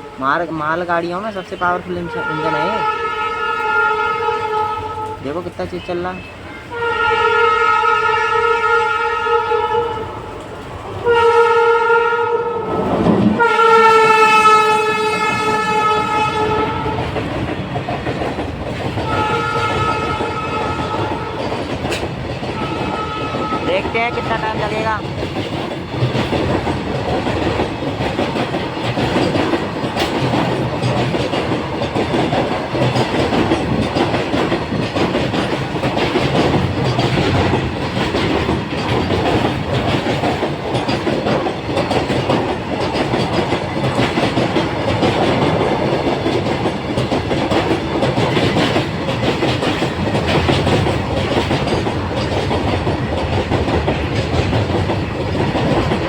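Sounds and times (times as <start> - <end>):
freight train rumble and rattle: 0.0 - 56.0
wheels clacking over rail joints: 12.7 - 56.0.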